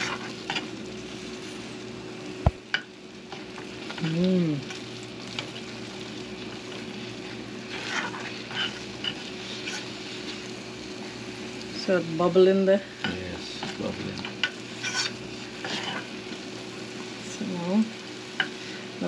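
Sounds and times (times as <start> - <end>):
spoon stirring and scraping: 0.0 - 0.7, 7.0 - 10.5, 13.4 - 16.4.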